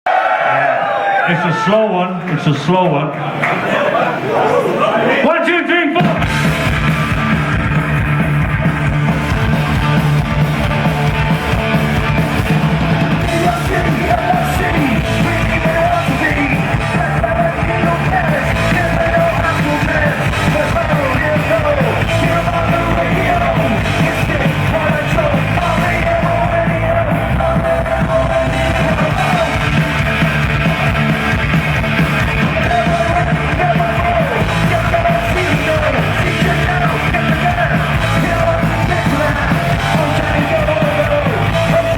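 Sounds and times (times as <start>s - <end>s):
shouted lead vocal: 3.6s - 6.4s, 13.1s - 30.8s, 32.0s - 41.9s
live punk rock band: 6.0s - 41.9s.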